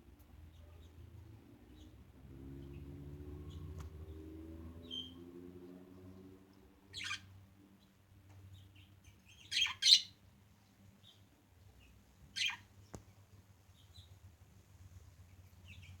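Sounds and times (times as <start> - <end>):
budgerigars chirping: 4.8 - 5.2, 6.9 - 7.3, 8.8 - 10.2, 12.4 - 12.7.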